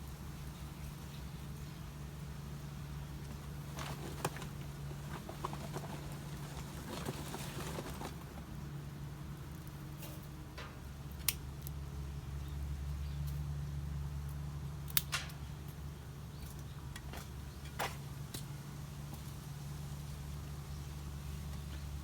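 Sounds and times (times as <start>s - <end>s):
fire crackles: 14.7s - 20.4s.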